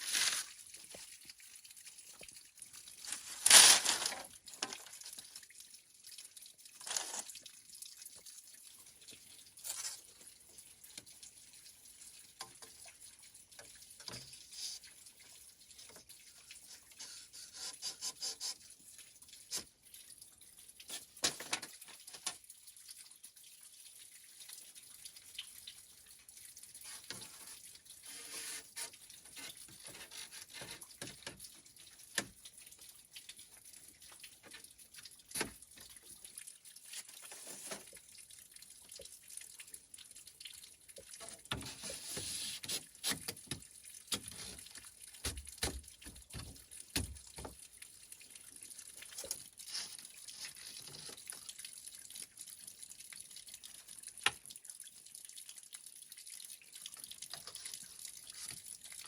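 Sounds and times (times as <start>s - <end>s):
water dripping in a sink: 0.0s - 59.0s
small clicks and knocks: 3.0s - 5.4s, 12.3s - 14.9s, 20.8s - 22.5s, 26.8s - 32.5s, 33.2s - 36.1s, 40.9s - 47.7s, 54.2s - 54.5s.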